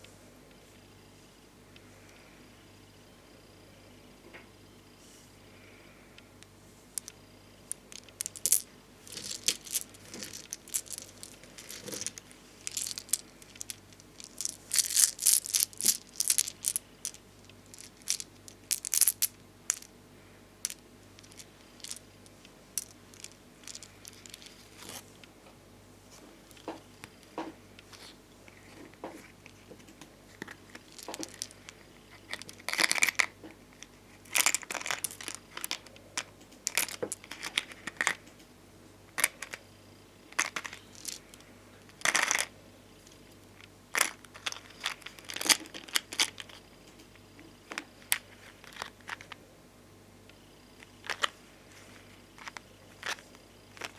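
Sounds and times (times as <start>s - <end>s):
stickers clicking: 7.7s - 17.2s
peeling and crinkling plastic sheets: 7.8s - 17.2s.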